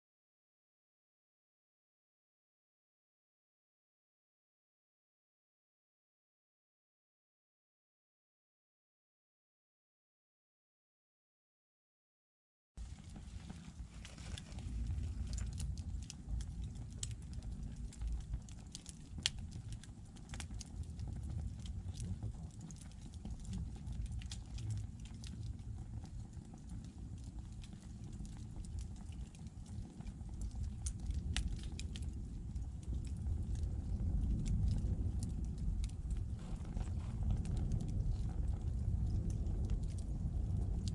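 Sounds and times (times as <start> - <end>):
fire low rumble: 12.8 - 40.9
logs crackling and popping: 12.8 - 40.9.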